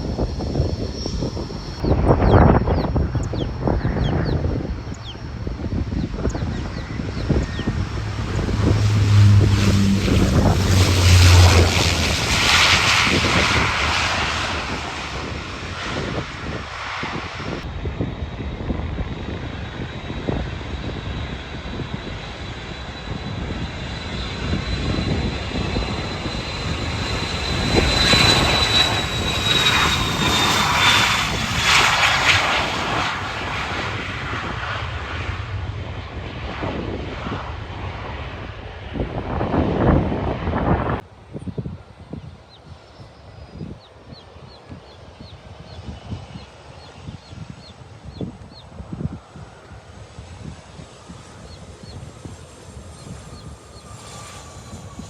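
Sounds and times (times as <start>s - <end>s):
low hum: 0.0s - 41.0s
high engine whine: 0.0s - 41.7s
jet engines roaring: 0.0s - 55.0s.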